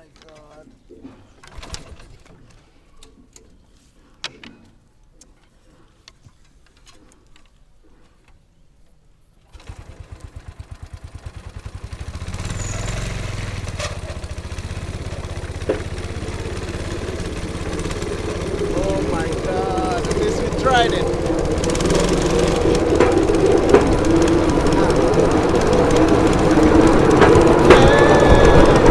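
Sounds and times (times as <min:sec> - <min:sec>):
small petrol engine running: 0:09.5 - 0:28.9.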